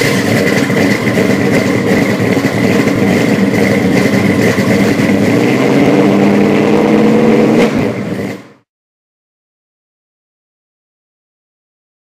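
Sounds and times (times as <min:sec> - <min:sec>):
loud vehicle engine running: 0:00.0 - 0:08.7
steady high whine: 0:00.0 - 0:08.7.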